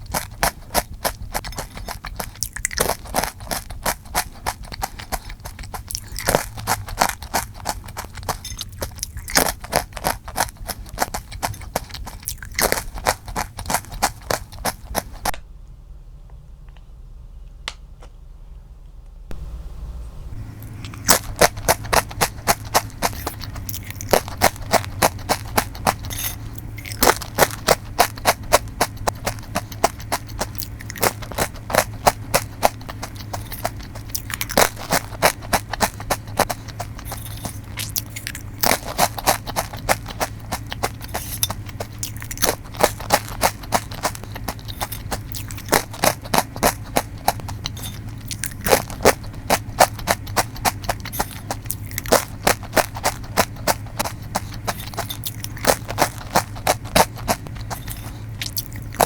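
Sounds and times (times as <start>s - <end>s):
crackers crunching in mouth: 0.0s - 15.4s, 20.6s - 59.0s
steady low hum: 0.0s - 59.0s.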